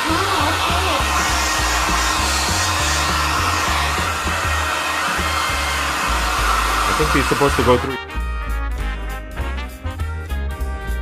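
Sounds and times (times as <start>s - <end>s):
hair dryer running: 0.0s - 8.0s.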